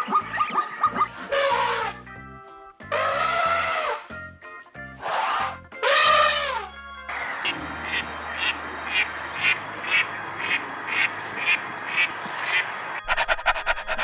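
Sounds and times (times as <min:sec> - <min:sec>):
duck quacking: 0:00.0 - 0:02.0, 0:02.9 - 0:04.0, 0:05.0 - 0:06.7, 0:07.8 - 0:14.0.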